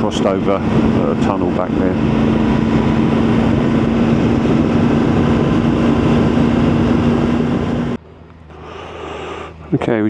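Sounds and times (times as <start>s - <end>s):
wind rushing over microphone: 0.0s - 8.0s
motorcycle engine humming: 0.0s - 10.0s.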